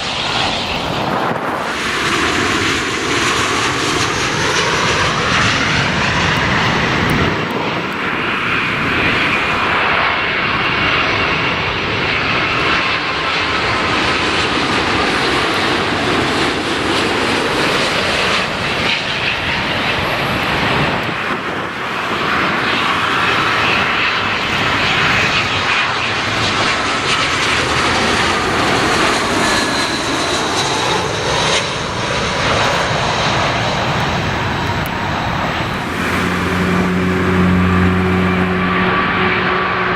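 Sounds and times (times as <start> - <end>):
jet engines passing: 0.0 - 39.9.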